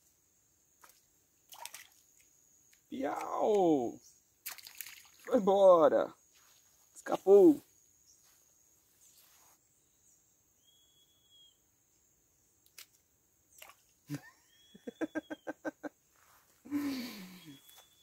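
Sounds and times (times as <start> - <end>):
high bird whistles: 10.6 - 11.6, 17.2 - 18.0.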